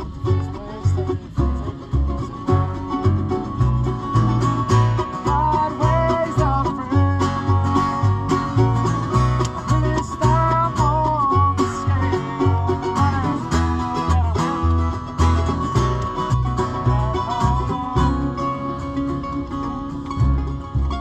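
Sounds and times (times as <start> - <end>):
banjo picking: 0.0 - 21.0
strummed guitar: 0.0 - 21.0
walking bass: 0.0 - 21.0.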